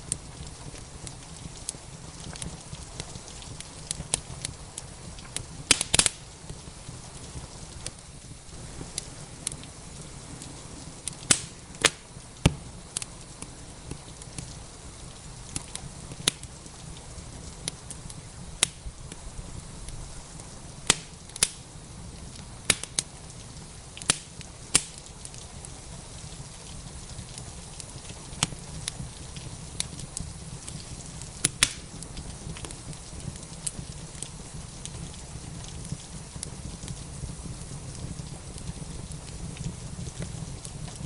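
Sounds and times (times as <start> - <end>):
rain hissing: 0.0 - 41.0
wood fire crackling: 0.0 - 41.0.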